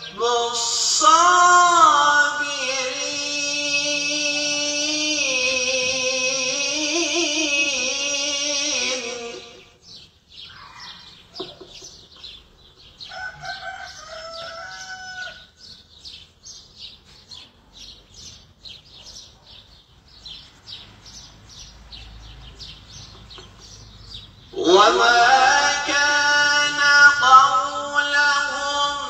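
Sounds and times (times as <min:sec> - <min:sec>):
bird drawn-out call: 0:10.4 - 0:11.8.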